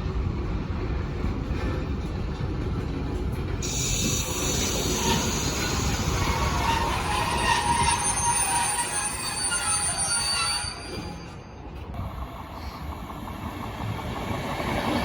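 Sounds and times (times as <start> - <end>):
train rumbling on rails: 0.0 - 15.0
hiss: 3.6 - 6.7
wheels squealing against rails: 3.6 - 11.9.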